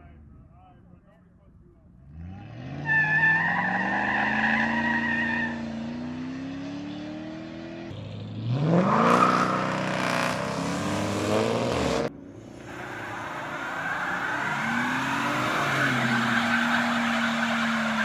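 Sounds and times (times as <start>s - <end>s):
car engine revving: 2.1s - 18.0s
tyres spinning and squealing: 2.6s - 6.3s, 12.6s - 18.0s.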